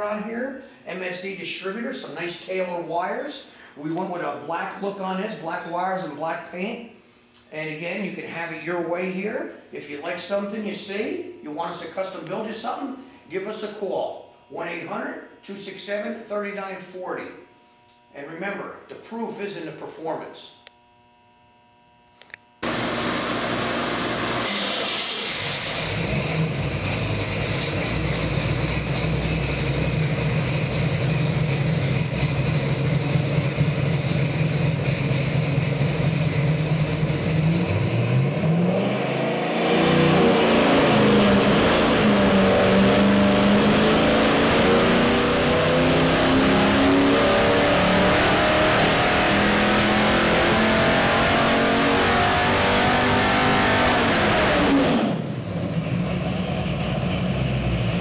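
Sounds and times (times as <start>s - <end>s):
car engine idling and revving: 22.6s - 58.0s.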